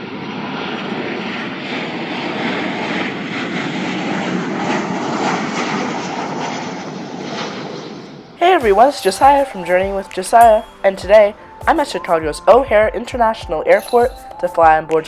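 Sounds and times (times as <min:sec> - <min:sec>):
jet engines roaring: 0:00.0 - 0:09.0.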